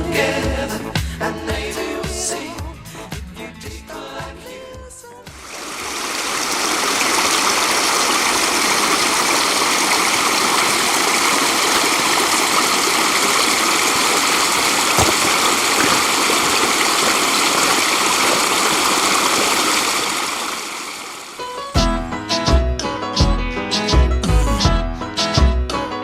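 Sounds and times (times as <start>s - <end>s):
waterfall rushing: 5.4s - 21.5s.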